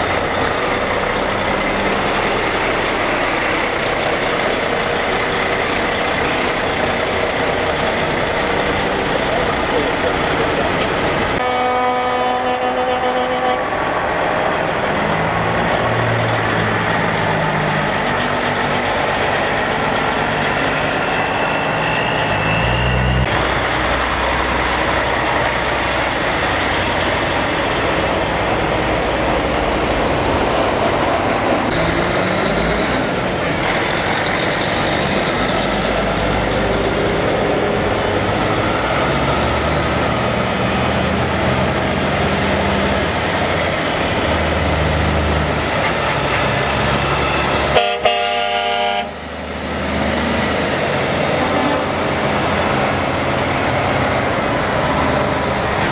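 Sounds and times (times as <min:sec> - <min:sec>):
heavy truck engines passing: 0:00.0 - 0:55.9
truck air horn blast: 0:11.4 - 0:13.8, 0:47.6 - 0:49.3, 0:51.3 - 0:52.0.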